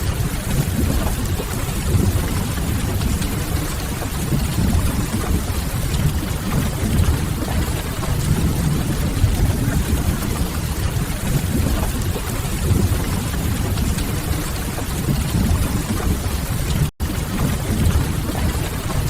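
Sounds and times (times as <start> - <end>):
rain falling: 0.0 - 19.0
wood fire crackling: 6.2 - 8.6
low rumble: 6.2 - 10.5.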